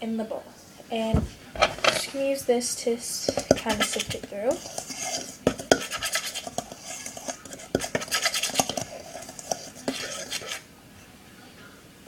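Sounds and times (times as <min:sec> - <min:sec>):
utensil stirring dry mix in bowl: 0:03.0 - 0:10.7.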